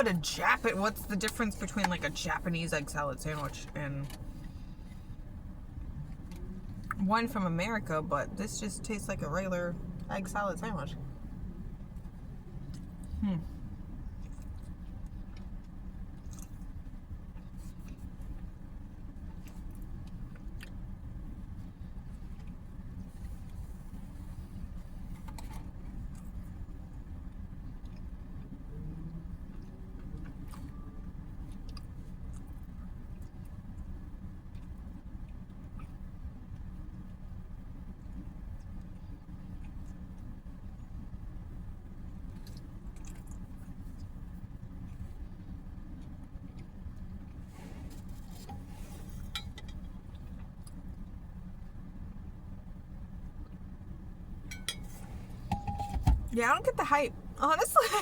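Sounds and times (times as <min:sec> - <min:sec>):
low rumble of vehicle noise: 0:00.0 - 0:58.0
person chewing food: 0:12.6 - 0:18.5, 0:42.3 - 0:44.2.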